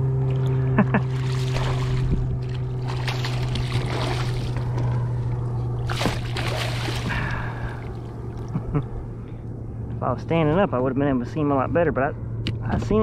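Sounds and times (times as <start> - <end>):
low hum: 0.0 - 13.0
water splashing and sloshing: 0.2 - 8.6.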